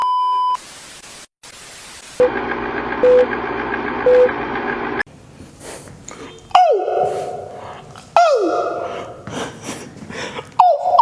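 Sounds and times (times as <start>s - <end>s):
static hiss: 0.6s - 2.2s
loud buzzing hum: 2.2s - 5.0s.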